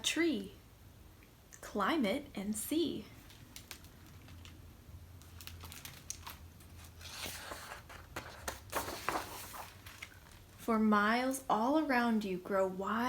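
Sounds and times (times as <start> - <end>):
paper rustling: 5.2 - 10.6.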